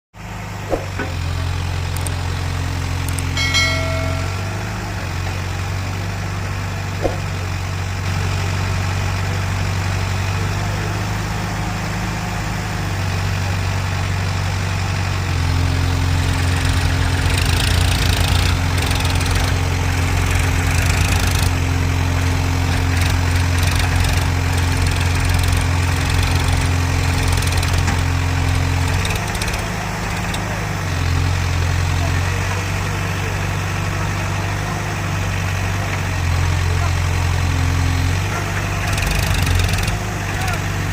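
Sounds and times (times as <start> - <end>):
heavy diesel engine droning: 0.2 - 40.9
brief pitched tone: 3.1 - 5.0.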